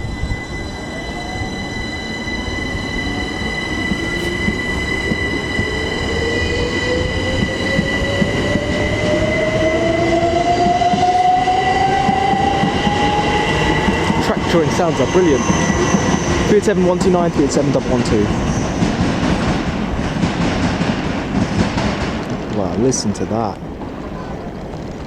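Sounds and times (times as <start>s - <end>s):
steady high-pitched tones: 0.0s - 19.8s
traction motors whining: 0.0s - 19.8s
train wheels rumbling on track: 0.0s - 25.0s.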